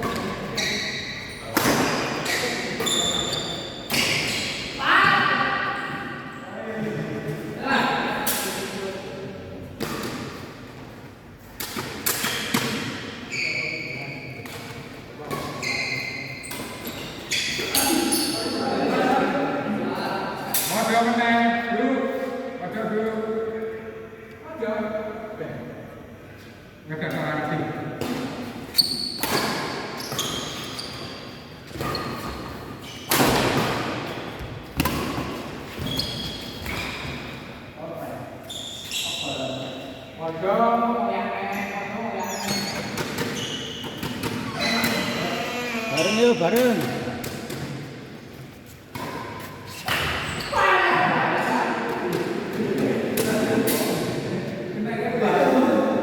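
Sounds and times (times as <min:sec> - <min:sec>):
shoes squeaking on court floor: 0:00.0 - 0:04.8, 0:11.4 - 0:18.7, 0:28.4 - 0:37.4, 0:38.4 - 0:40.1, 0:41.5 - 0:50.6.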